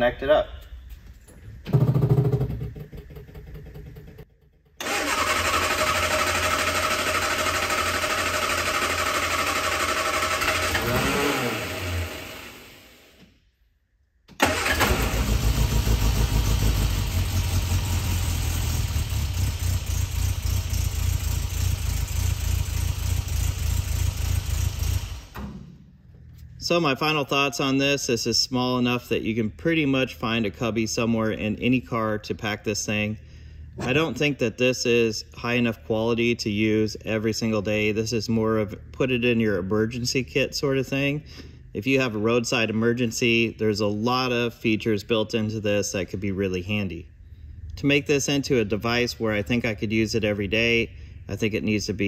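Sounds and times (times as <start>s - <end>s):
car engine revving and idling: 5.2s - 13.2s, 14.8s - 25.4s.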